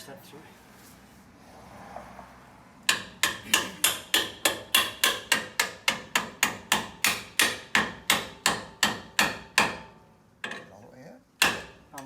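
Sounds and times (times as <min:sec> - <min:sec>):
hammer striking steel bolt: 0:02.9 - 0:10.7, 0:11.4 - 0:12.0.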